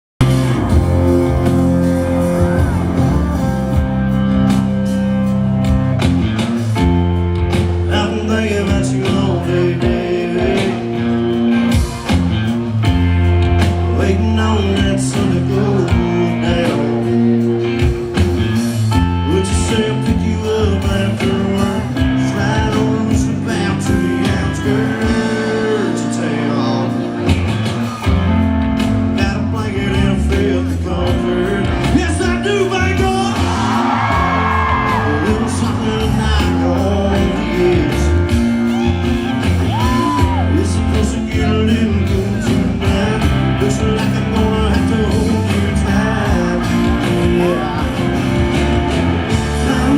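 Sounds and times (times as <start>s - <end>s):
electric guitars: 0.2s - 49.9s
live country rock band: 0.2s - 49.9s
person singing: 7.8s - 12.0s, 13.8s - 17.9s, 19.1s - 27.4s, 29.2s - 49.9s
drum beat: 31.9s - 49.9s.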